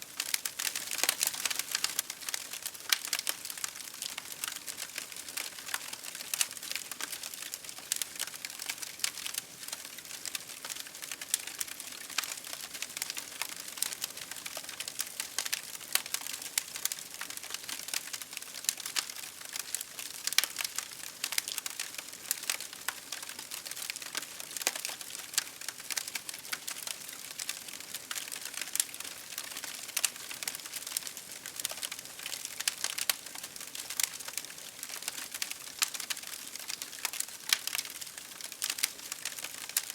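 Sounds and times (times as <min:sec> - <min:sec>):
campfire wood crackling and popping: 0:00.0 - 0:39.9.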